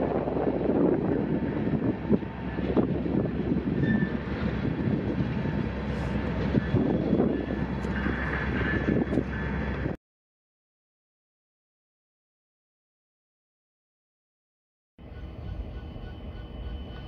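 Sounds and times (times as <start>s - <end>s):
diesel locomotives rumbling: 0.0s - 10.0s, 15.0s - 17.0s
wind buffeting microphone: 0.0s - 10.0s.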